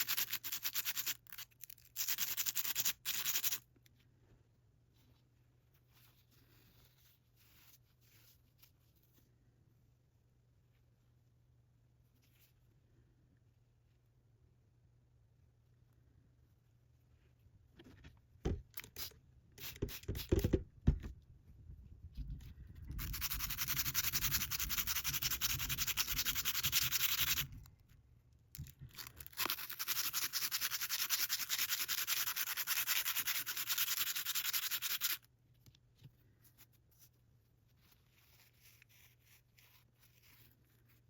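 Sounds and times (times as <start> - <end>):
sanding metal scratching: 23.0 - 27.5, 29.6 - 35.2.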